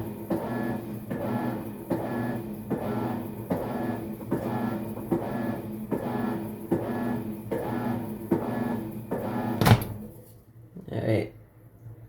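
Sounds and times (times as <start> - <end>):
washing machine motor humming: 0.0 - 10.2
washing machine reversal clicks: 9.2 - 10.0.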